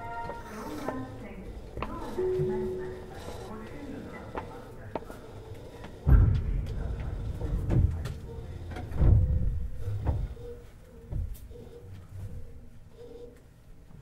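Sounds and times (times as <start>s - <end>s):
heavy thuds of train wheels: 5.8s - 11.4s
train running rumble: 6.0s - 10.6s.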